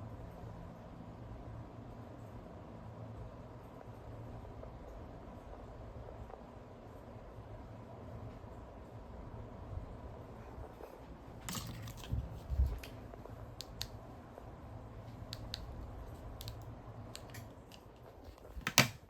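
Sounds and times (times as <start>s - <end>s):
ceiling fan humming: 0.0s - 19.0s
light clicks and ticks: 16.4s - 19.0s.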